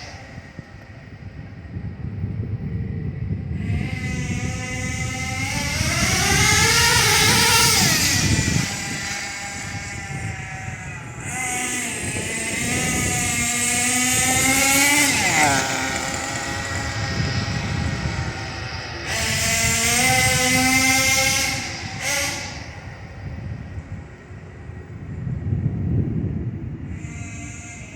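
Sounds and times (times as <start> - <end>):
rc car engine revving: 3.3 - 23.1, 26.9 - 27.9.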